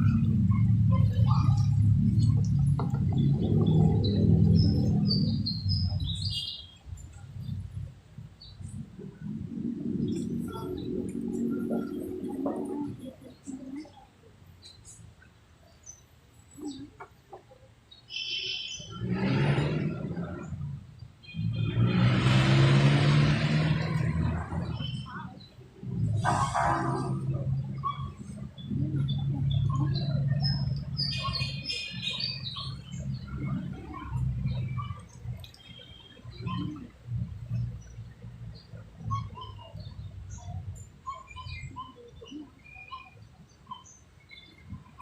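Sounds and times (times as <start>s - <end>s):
birds chirping: 0.0s - 21.8s, 22.6s - 45.0s
faint scattered sounds: 0.0s - 21.8s, 23.6s - 45.0s
high-pitched bird calls: 18.1s - 19.0s, 27.7s - 36.9s, 37.5s - 45.0s
loud rough noise: 21.6s - 24.7s.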